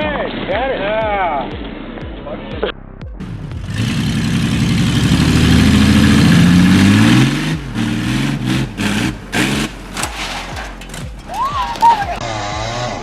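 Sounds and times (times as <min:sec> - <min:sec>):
truck engine revving under load: 0:03.2 - 0:13.0.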